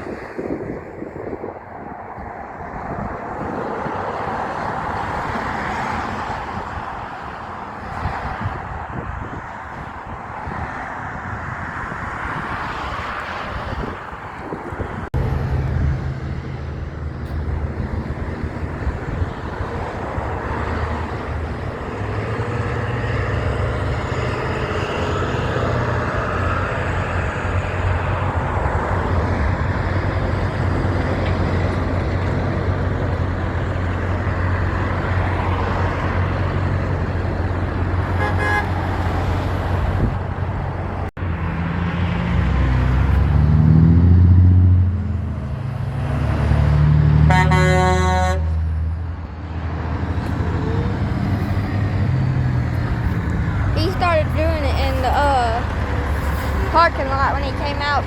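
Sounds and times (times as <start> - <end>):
traffic noise: 0.0 - 58.0
diesel truck engine rumbling: 13.4 - 58.0.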